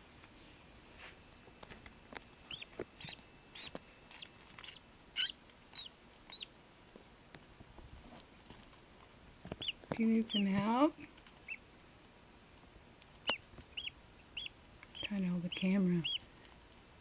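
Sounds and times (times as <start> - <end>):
duckling peeping: 2.4 - 6.5, 9.5 - 10.8, 11.4 - 11.6, 13.2 - 16.2.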